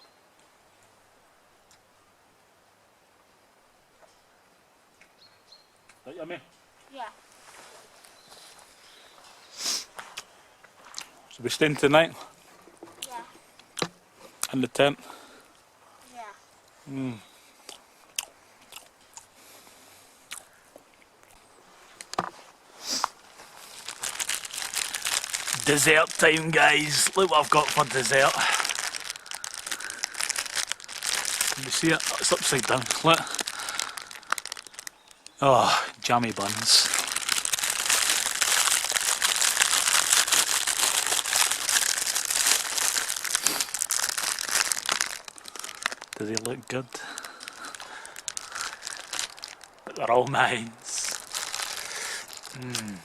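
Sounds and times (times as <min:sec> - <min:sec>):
plastic packaging crinkling: 0:23.5 - 0:35.4, 0:36.0 - 0:49.9, 0:50.9 - 0:52.9.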